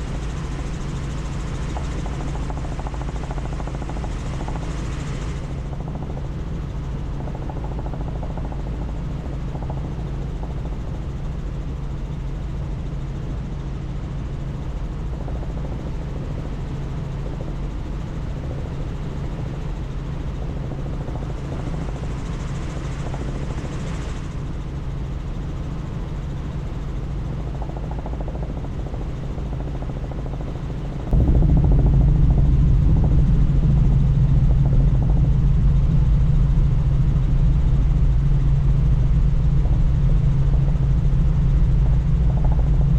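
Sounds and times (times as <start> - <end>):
helicopter rotor and turbine drone: 0.0 - 42.9
wind noise: 31.0 - 42.9.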